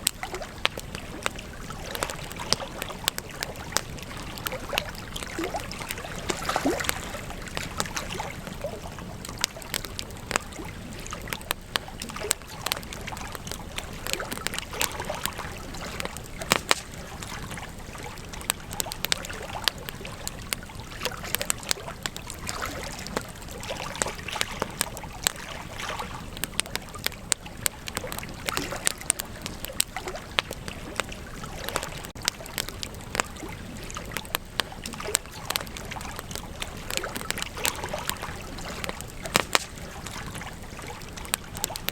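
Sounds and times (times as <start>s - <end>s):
wood campfire crackling and popping: 0.0s - 41.9s.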